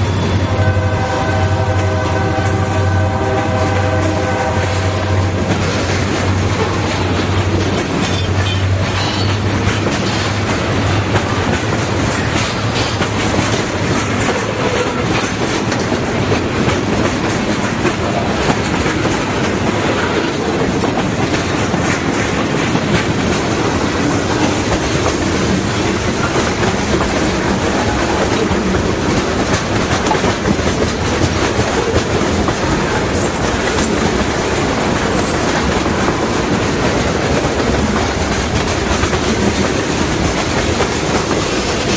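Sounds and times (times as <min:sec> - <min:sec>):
train wheels clacking: 0:00.0 - 0:41.9.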